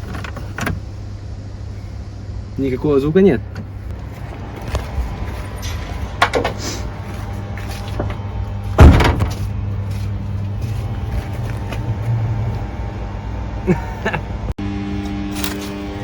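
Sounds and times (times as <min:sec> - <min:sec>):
steady low hum: 0:00.0 - 0:16.0
car door slamming: 0:08.8 - 0:09.4.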